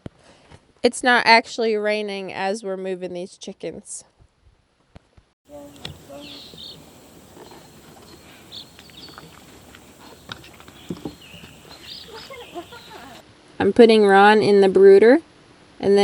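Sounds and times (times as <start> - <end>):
baby chicks peeping: 5.5 - 13.2
soft knocks and rustling: 7.3 - 11.8.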